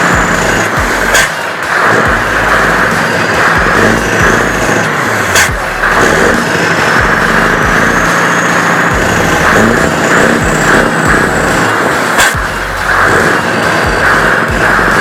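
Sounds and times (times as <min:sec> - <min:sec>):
truck engine running loud: 0:00.0 - 0:15.0.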